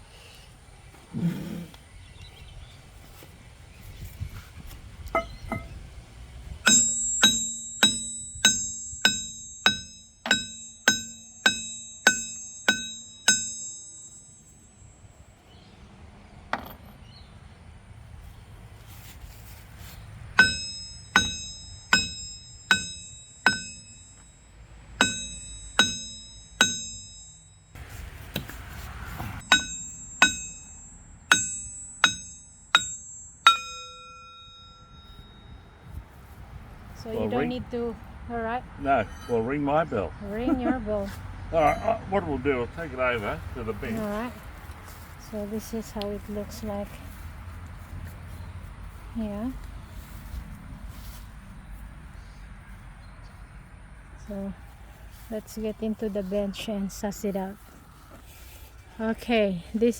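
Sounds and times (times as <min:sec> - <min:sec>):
hammer ringing on steel: 0:05.2 - 0:05.8, 0:06.6 - 0:15.1, 0:20.4 - 0:24.4, 0:25.0 - 0:27.8, 0:29.4 - 0:35.8, 0:38.9 - 0:39.7, 0:41.6 - 0:42.2.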